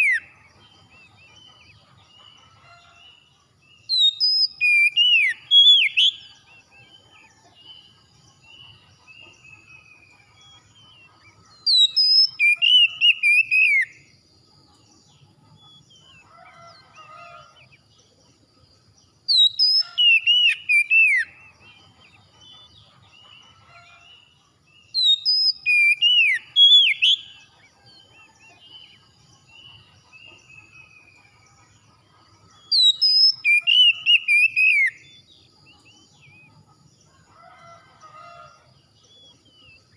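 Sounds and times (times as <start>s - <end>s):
bird whistled song: 0.0s - 2.8s, 3.8s - 14.1s, 19.3s - 24.0s, 24.8s - 31.6s, 32.6s - 36.6s
faint bird chirps: 0.0s - 39.9s.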